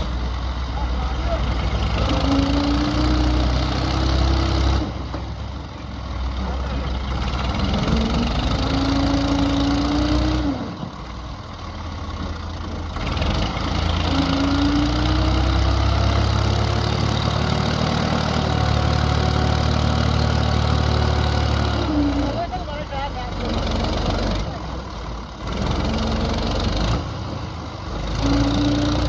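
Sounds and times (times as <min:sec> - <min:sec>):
tractor diesel engine revving: 0:00.0 - 0:29.0.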